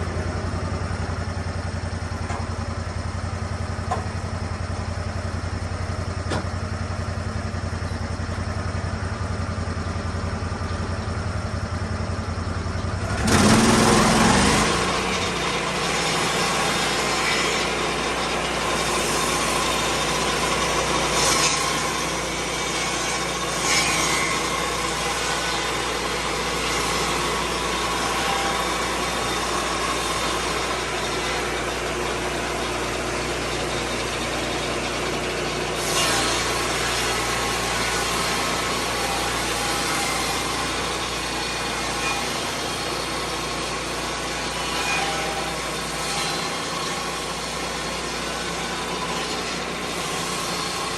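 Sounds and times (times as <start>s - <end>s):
sawmill engine running: 0.0s - 50.9s
circular saw cutting log: 12.9s - 50.9s.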